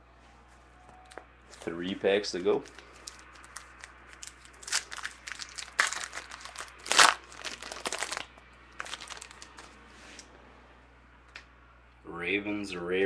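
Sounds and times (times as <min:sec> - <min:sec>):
wrapper being torn and crinkled: 0:02.6 - 0:09.8.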